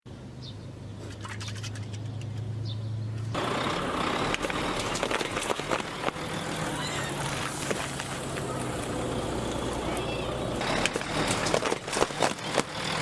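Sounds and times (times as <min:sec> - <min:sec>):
truck engine running: 0:02.4 - 0:13.0
crackling rushing noise: 0:03.4 - 0:12.3.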